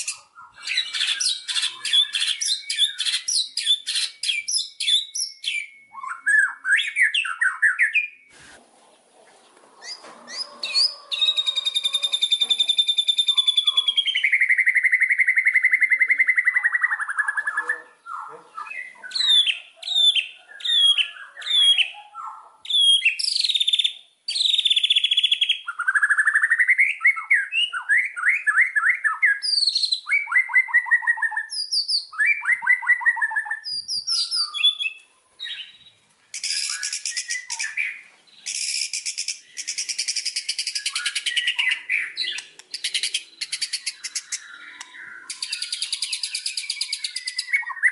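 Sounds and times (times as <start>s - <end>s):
songbird singing whistles and trills: 0.0s - 8.3s, 9.8s - 47.9s.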